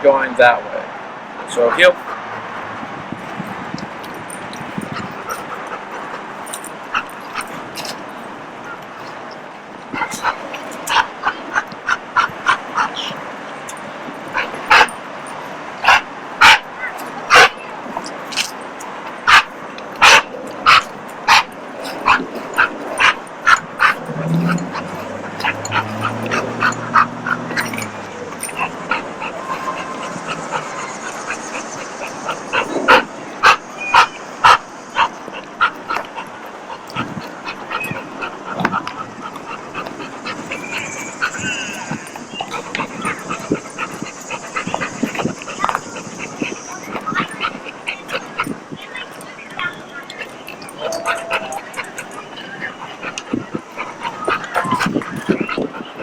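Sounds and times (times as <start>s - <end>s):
dog barking: 14.3s - 17.7s, 19.2s - 49.7s.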